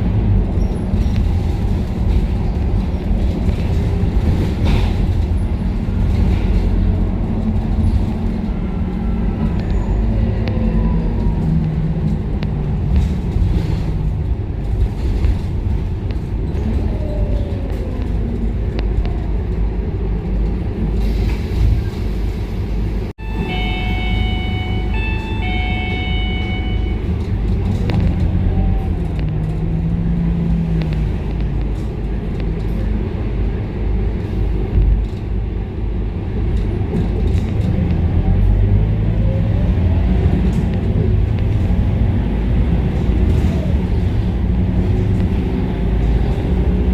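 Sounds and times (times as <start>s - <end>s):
bus diesel engine running: 0.0s - 46.9s
road rumble: 0.0s - 46.9s
short electronic beeps: 23.2s - 27.1s.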